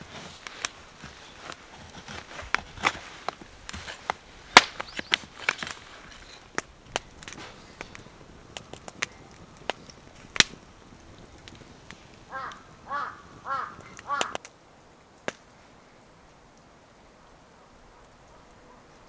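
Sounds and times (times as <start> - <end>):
crow cawing: 12.3 - 14.4.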